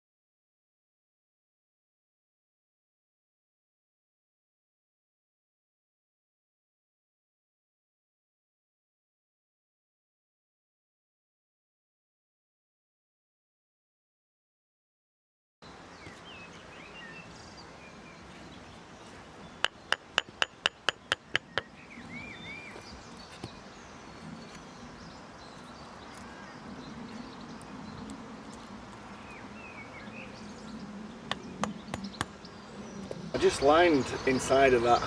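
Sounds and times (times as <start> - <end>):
small birds chirping: 15.6 - 35.0.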